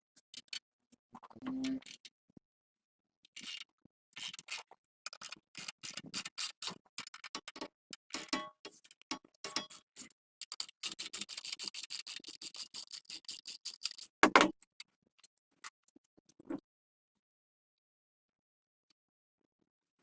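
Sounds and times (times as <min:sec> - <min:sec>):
loud knock: 0:14.2 - 0:14.5.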